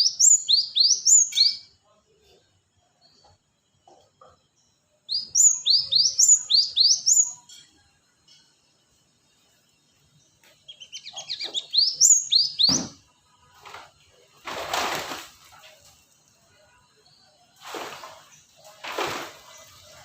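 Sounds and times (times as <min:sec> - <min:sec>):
bird singing whistled notes: 0:00.0 - 0:01.7, 0:05.0 - 0:07.6, 0:09.3 - 0:13.0
dull thump: 0:12.6 - 0:13.0.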